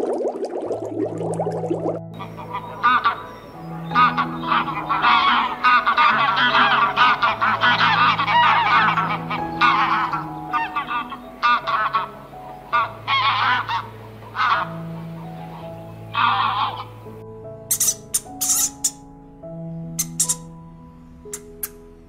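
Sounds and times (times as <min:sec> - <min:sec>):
geese honking: 0:02.2 - 0:19.0, 0:20.0 - 0:20.5.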